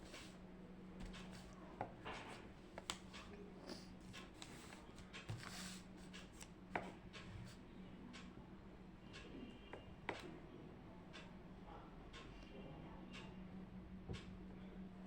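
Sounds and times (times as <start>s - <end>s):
steady low hum: 0.0s - 15.0s
light clicks and taps: 1.0s - 3.4s.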